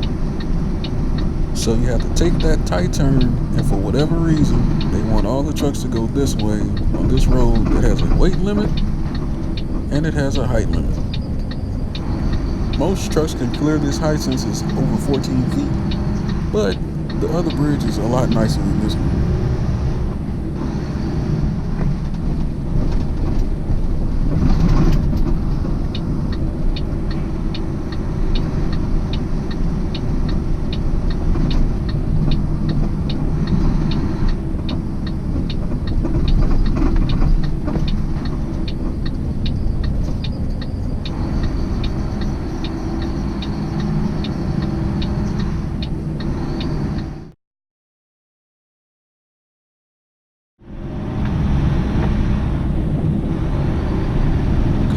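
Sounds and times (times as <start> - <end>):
light ticking: 0.0 - 19.3
truck engine and road rumble: 0.0 - 47.3, 50.6 - 54.9.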